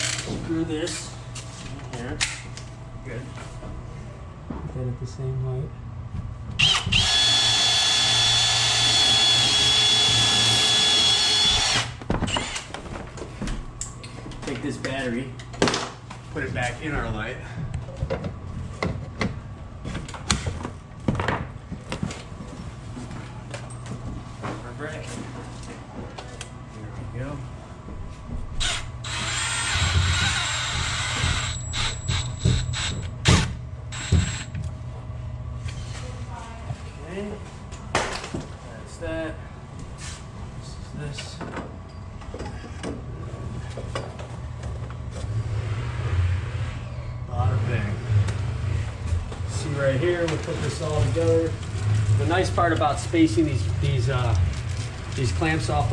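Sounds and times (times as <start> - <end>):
drill drilling into wall: 6.6 - 12.6, 28.6 - 34.5.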